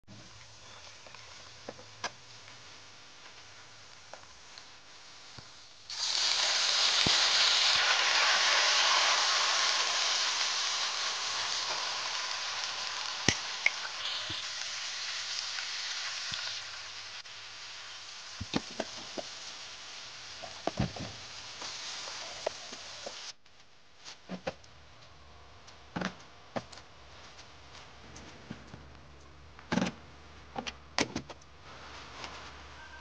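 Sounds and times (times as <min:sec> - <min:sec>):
onions frying in hot oil: 0:02.3 - 0:23.4.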